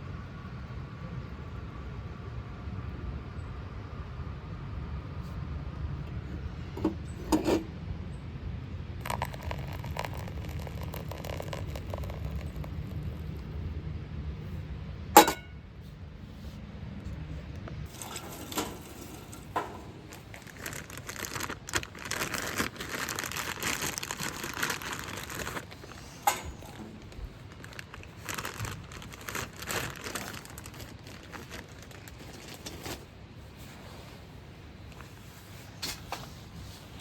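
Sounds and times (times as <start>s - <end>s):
crinkling and rustling: 9.0s - 12.9s, 17.1s - 37.0s.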